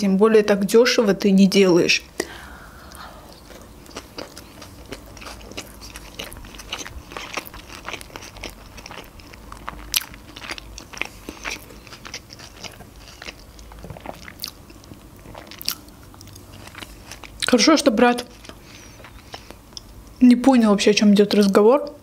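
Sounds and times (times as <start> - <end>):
person chewing food: 2.2 - 17.6, 18.2 - 20.2.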